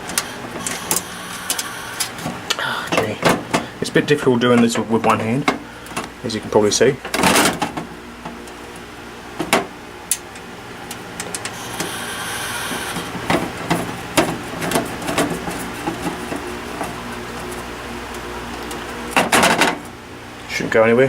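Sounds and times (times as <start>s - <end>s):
hard drive scraping slide: 0.0s - 2.5s, 10.9s - 20.0s.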